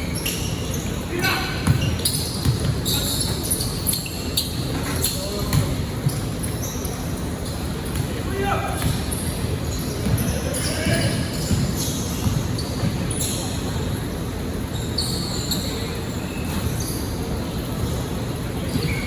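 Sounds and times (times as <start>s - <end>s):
shoe squeaks: 0.0s - 13.9s, 14.7s - 19.0s
voices of players and spectators: 0.0s - 19.0s
basketball bouncing on court: 1.2s - 13.5s.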